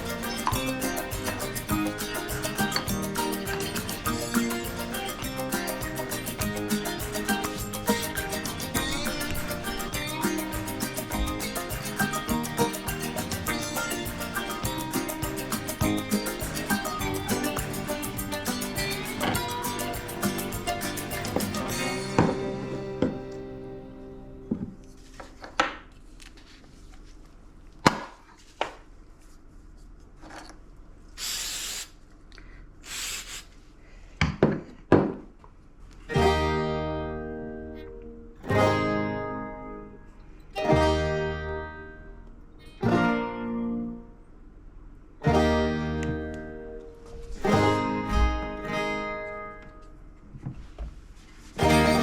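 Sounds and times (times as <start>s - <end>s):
acoustic guitar strumming chords: 0.0s - 25.2s, 36.1s - 44.2s, 45.2s - 50.1s, 51.5s - 52.0s
short hissing bursts: 31.1s - 32.0s, 32.8s - 33.7s.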